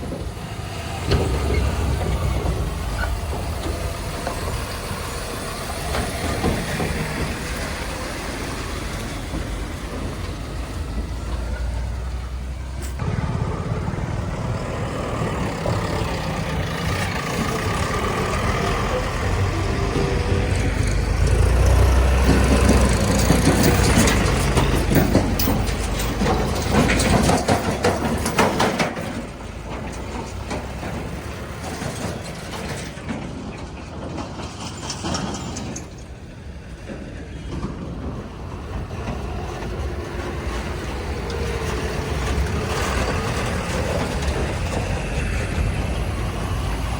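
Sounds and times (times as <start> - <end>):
heavy diesel machinery running: 0.0 - 46.9
rattling and clanking: 0.0 - 46.9.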